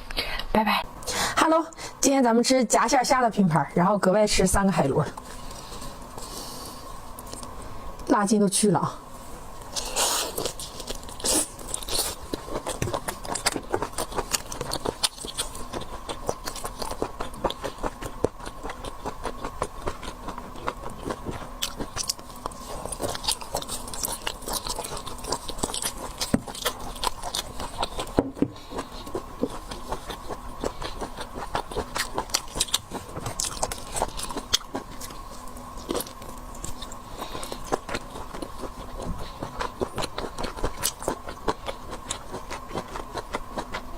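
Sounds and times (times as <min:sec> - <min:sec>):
faint steady hum: 0:00.0 - 0:43.9
person chewing crunchy food: 0:09.6 - 0:43.9.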